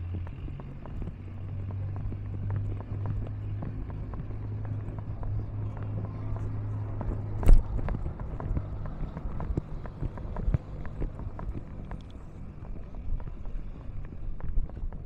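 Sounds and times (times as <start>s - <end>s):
train running on track: 0.0s - 15.0s
wheels clicking on rails: 0.0s - 15.0s.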